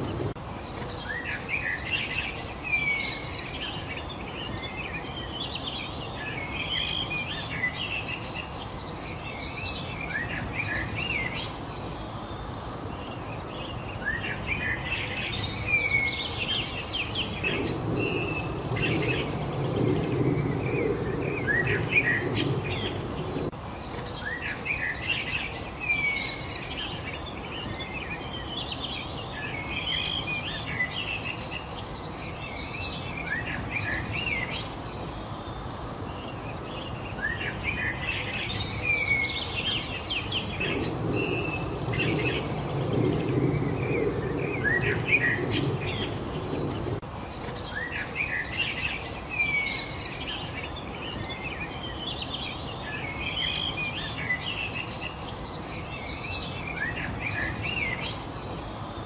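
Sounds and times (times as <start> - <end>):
songbirds chirping and singing: 0.0 - 59.0
steady background hiss: 0.0 - 59.0
low rumble: 17.3 - 23.5, 40.3 - 47.0.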